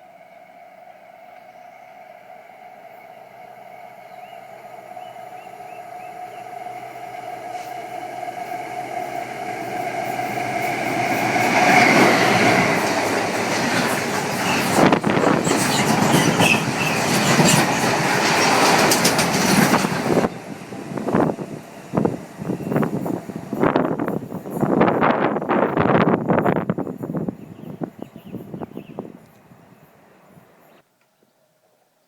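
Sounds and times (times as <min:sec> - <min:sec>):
train passing: 0:00.0 - 0:30.8
wheels clicking over rail joints: 0:10.0 - 0:20.4
wheel squeal: 0:10.1 - 0:19.8.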